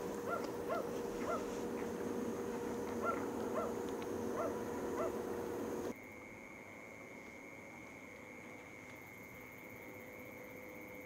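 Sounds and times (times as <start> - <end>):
steady low hum: 0.0 - 11.0
dog barking: 0.3 - 1.5, 3.0 - 3.8, 4.4 - 5.2.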